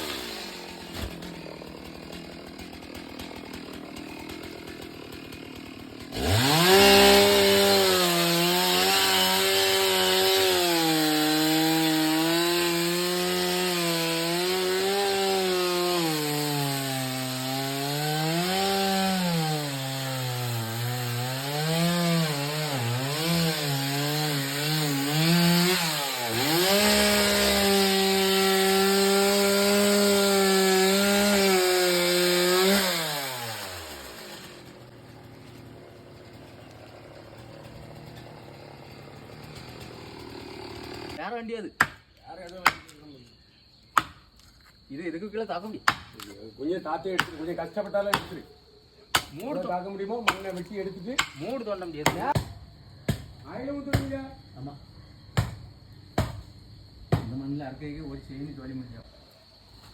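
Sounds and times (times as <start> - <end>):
chainsaw cutting wood: 0.0 - 41.2, 44.0 - 44.4, 45.8 - 46.4, 47.2 - 48.4, 49.1 - 52.5.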